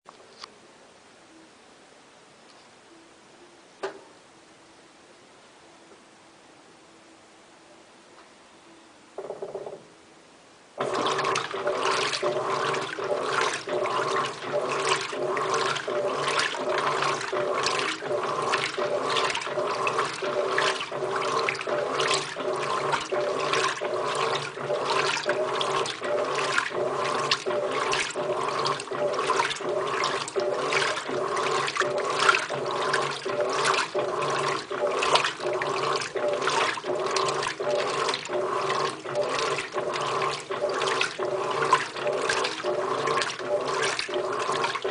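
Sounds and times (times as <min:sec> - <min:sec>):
washing machine motor hum: 0:10.8 - 0:44.9
washing machine water swishing: 0:10.8 - 0:44.9.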